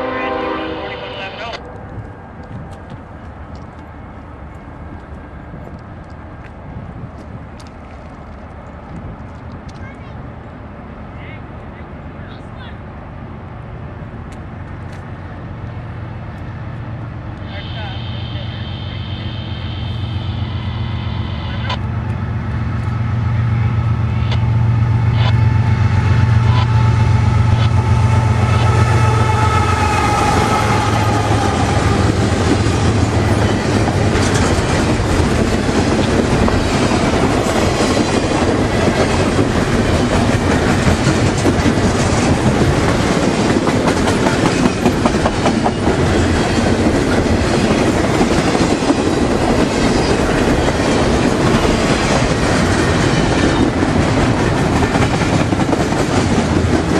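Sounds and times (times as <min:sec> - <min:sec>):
locomotive engines droning: 0:00.0 - 0:55.8
train wheels clattering over rail joints: 0:32.0 - 0:56.9.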